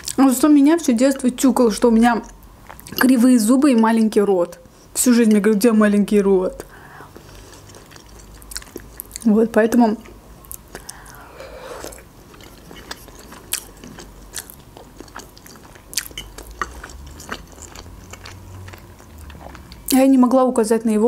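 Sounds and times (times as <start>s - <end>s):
person chewing: 2.6s - 3.0s, 6.6s - 9.3s, 10.0s - 20.0s.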